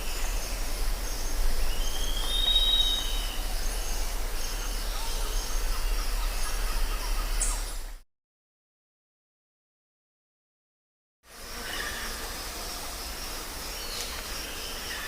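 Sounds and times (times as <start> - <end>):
high-pitched insects chorus: 0.0 - 8.0, 11.3 - 15.0
whistled bird call: 1.8 - 3.4.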